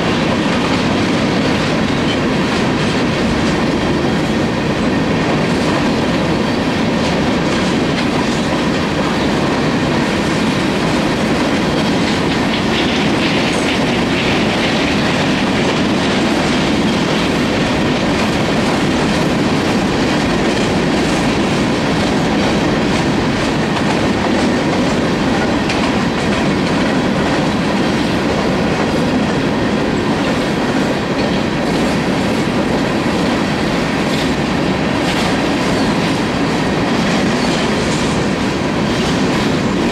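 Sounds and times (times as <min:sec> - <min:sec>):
freight train wheels rumbling: 0:00.0 - 0:39.9
wheels clacking over rail joints: 0:00.0 - 0:39.9.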